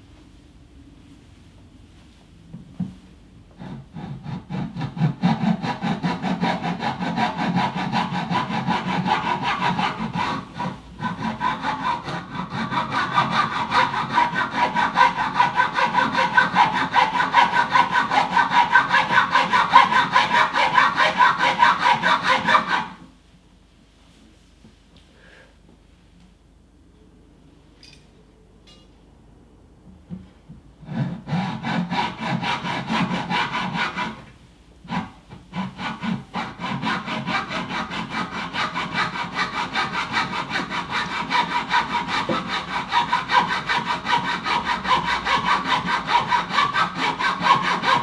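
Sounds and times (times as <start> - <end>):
saw cutting wood: 3.6 - 23.0, 30.9 - 34.3, 34.9 - 48.0.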